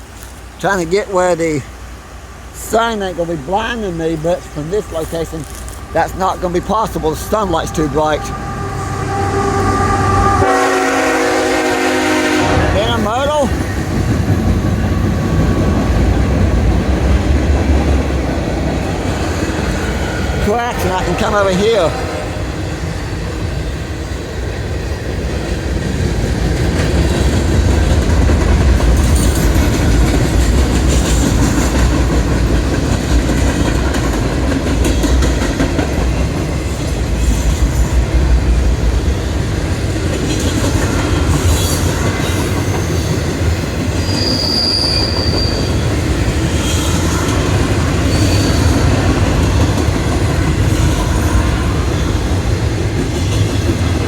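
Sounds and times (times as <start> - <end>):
freight train wheels rumbling: 0.0 - 54.0
high wheel squeal: 4.2 - 11.3, 43.9 - 49.1.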